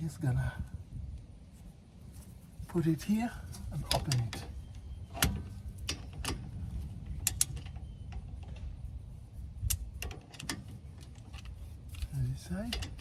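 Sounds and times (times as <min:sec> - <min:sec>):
hand tool clicking on bolt: 0:07.2 - 0:07.8.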